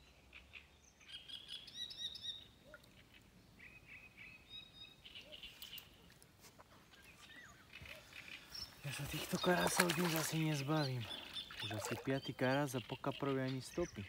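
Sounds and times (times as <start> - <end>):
faint birdsong chirping: 0.0 - 14.0.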